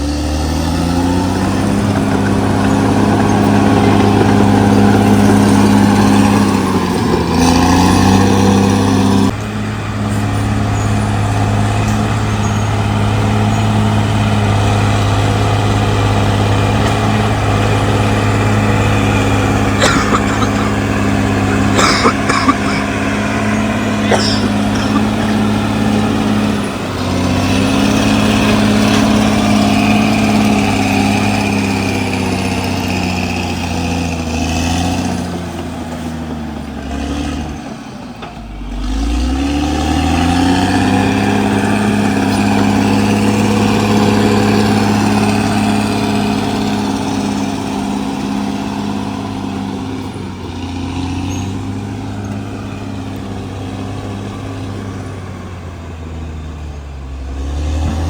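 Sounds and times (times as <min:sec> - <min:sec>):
bulldozer diesel engine working: 0:00.0 - 0:58.0.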